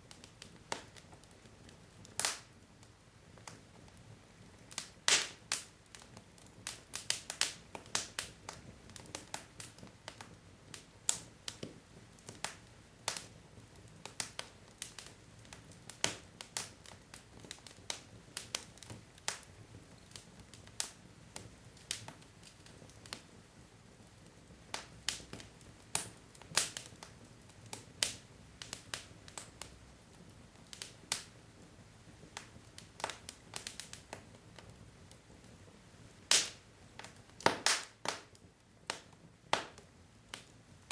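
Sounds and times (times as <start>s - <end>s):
faint hiss of flames: 0.0s - 40.9s
logs crackling and popping: 0.0s - 40.9s.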